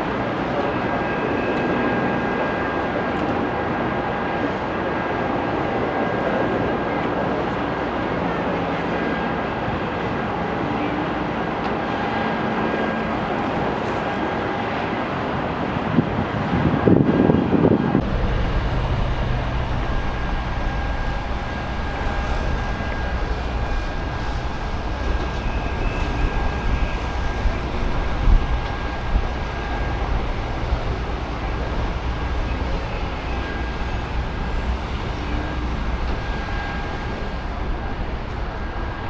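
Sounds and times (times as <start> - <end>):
distant engines rumbling: 0.0 - 39.0
faint steady whine: 0.0 - 39.0
loud burst of noise: 15.7 - 39.0.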